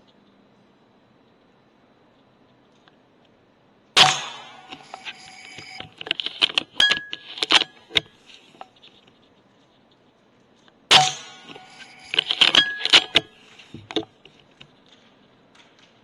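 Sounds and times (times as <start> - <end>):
air rifle shot: 4.0 - 5.0, 10.9 - 12.1
irregular clicks and rattles: 11.4 - 16.0.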